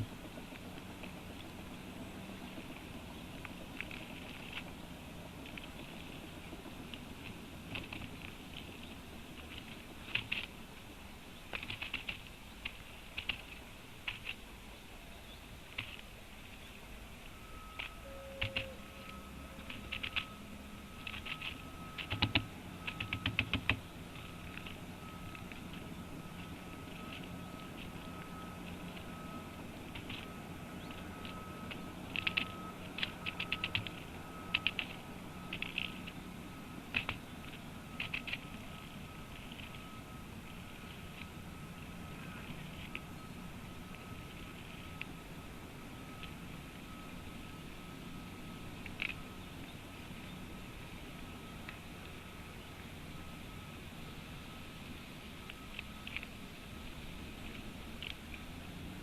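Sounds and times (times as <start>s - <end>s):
woodpecker tapping: 11.4s - 14.4s, 15.7s - 36.2s, 36.9s - 39.8s.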